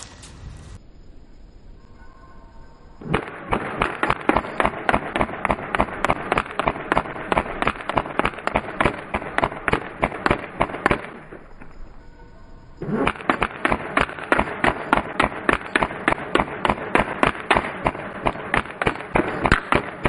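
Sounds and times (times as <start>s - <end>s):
airsoft rifle automatic fire: 3.0s - 11.4s, 12.8s - 20.0s.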